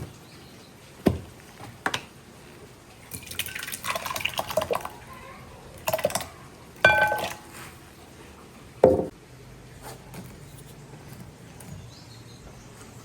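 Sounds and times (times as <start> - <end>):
metallic clink of kitchenware: 6.9 - 7.6
dull knock: 8.8 - 9.1.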